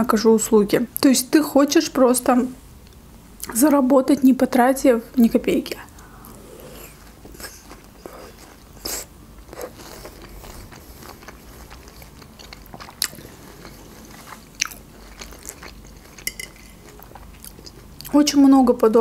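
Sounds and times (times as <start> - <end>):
person chewing melon: 6.0 - 18.1.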